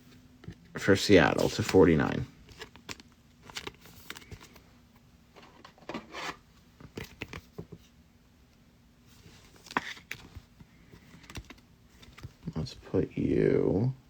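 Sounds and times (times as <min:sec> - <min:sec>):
cards sliding and rubbing: 0:01.2 - 0:04.6, 0:05.4 - 0:07.8, 0:09.2 - 0:12.4.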